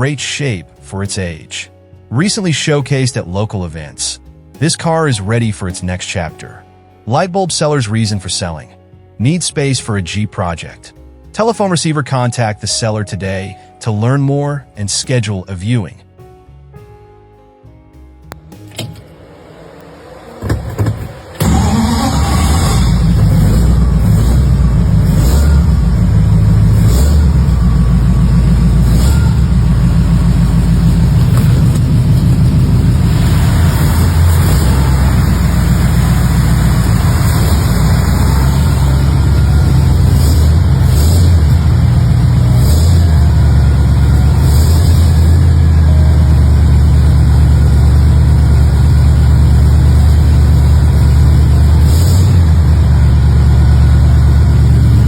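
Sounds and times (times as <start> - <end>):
car exhaust rumble: 19.0 - 55.0.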